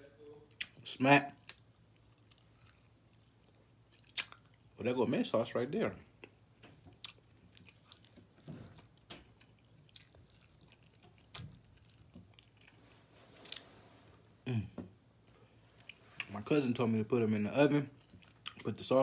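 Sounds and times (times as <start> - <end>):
person chewing meat: 1.4 - 4.8, 6.2 - 12.8, 17.9 - 18.7
wet mouth clicks and smacks: 3.9 - 4.6.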